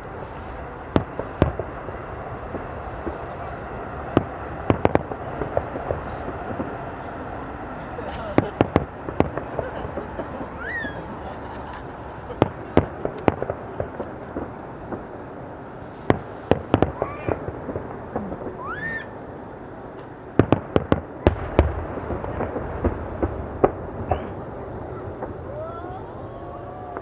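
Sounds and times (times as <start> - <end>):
rising firework whistle: 0.0 - 13.6, 15.7 - 19.3, 21.2 - 27.0
fireworks bangs: 0.0 - 27.0.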